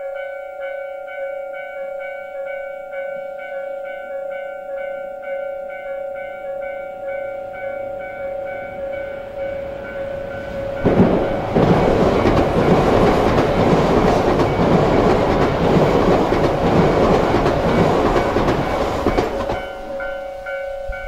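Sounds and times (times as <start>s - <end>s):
train rushing past on rails: 5.7s - 21.0s.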